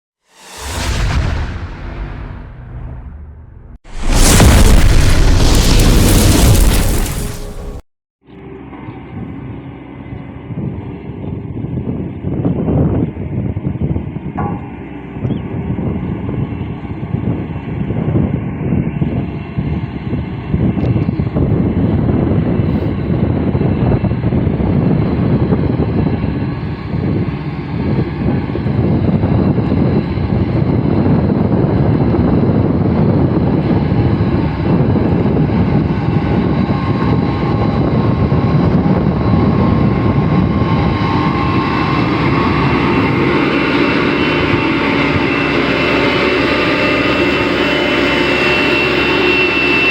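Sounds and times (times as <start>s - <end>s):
steady whine: 0.3s - 7.8s, 34.4s - 49.9s
diesel machinery engine drone: 13.2s - 49.9s.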